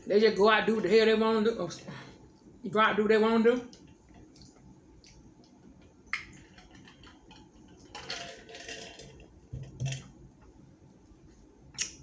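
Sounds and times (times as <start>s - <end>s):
wet chewing: 3.7s - 7.3s.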